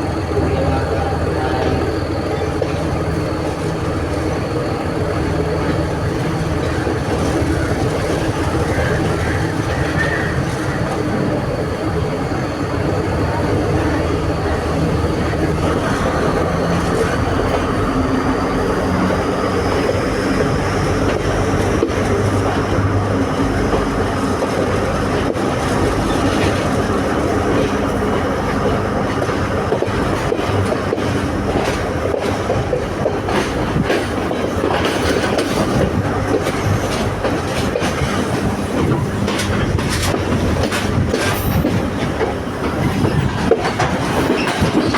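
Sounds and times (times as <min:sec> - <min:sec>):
train engine and wheels roaring: 0:00.0 - 0:44.9
wheels clicking over rail joints: 0:19.6 - 0:44.9.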